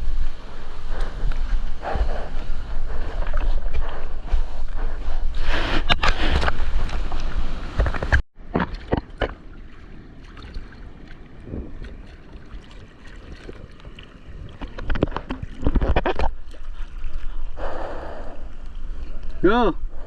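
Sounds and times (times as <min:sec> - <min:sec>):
seawater splashing: 0:00.0 - 0:17.8.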